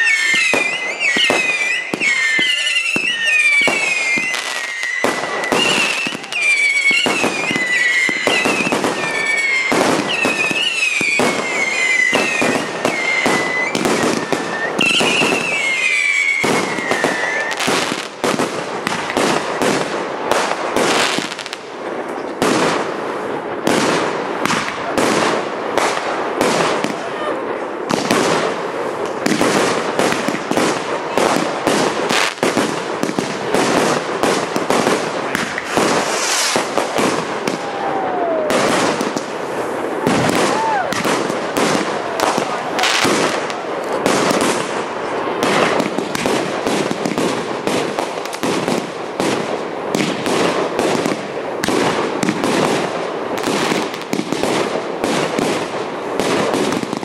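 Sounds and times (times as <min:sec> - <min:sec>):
wavering descending whistle: 0:00.0 - 0:17.6
fireworks bangs and crackling: 0:00.0 - 0:57.0.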